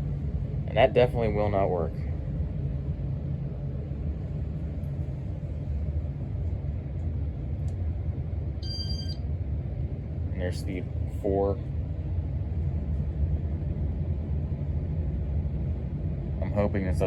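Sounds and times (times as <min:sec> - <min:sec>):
ceiling fan humming: 0:00.0 - 0:17.0
high electronic beep: 0:08.6 - 0:09.2.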